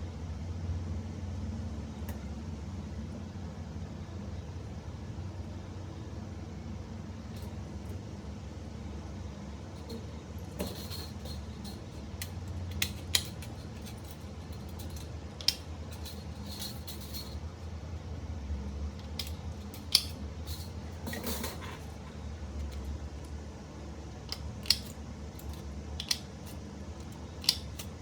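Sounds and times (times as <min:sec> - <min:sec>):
steady low hum: 0:00.0 - 0:28.0
metallic clicks of hand tools: 0:10.6 - 0:17.3, 0:19.0 - 0:21.5, 0:24.3 - 0:28.0.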